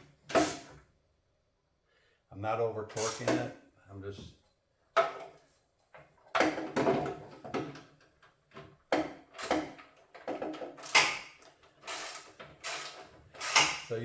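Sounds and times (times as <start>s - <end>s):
socket wrench clunking and scraping: 8.5s - 13.9s.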